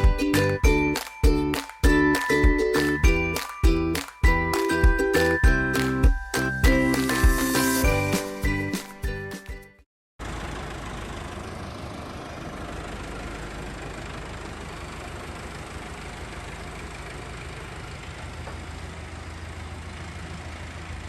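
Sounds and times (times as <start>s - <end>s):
tractor diesel engine idling: 10.2s - 21.0s.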